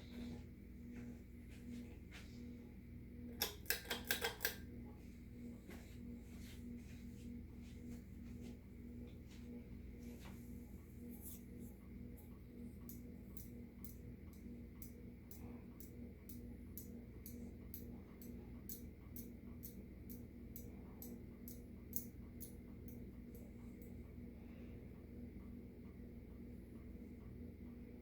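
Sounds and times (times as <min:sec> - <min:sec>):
ceiling fan motor hum: 0:00.0 - 0:28.0
fan ticking: 0:12.3 - 0:24.0.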